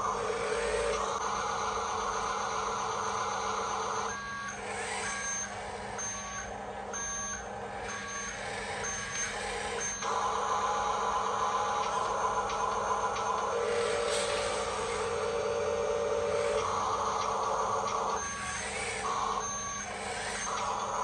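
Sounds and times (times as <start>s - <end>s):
toy truck motor whirring: 0.0s - 21.0s
reversing alarm beeps: 0.6s - 21.0s.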